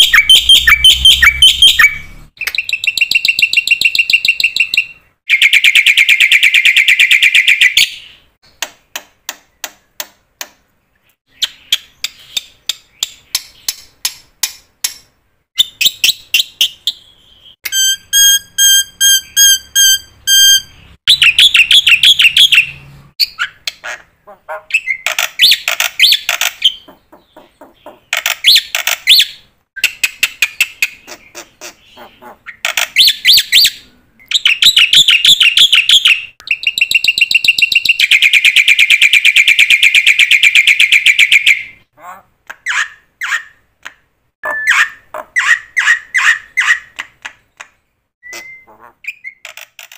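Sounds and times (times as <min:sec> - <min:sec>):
bird trills and chirps: 0:00.0 - 0:08.6, 0:10.9 - 0:14.2, 0:15.6 - 0:43.6, 0:44.4 - 0:49.9
repeated bird notes on one pitch: 0:00.0 - 0:08.6, 0:15.6 - 0:41.8, 0:44.4 - 0:47.0, 0:48.2 - 0:49.5.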